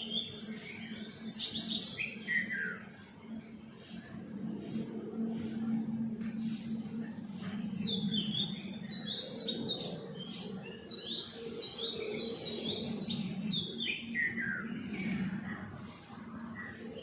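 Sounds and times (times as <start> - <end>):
bird chirping: 0.0 - 3.2, 3.8 - 17.0
steady low hum: 2.8 - 10.9.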